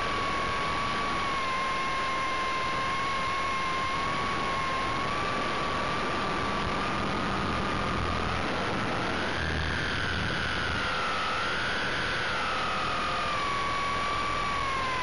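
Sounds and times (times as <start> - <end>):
rotor and wind noise: 0.0 - 15.0
model helicopter motor whining: 8.0 - 15.0.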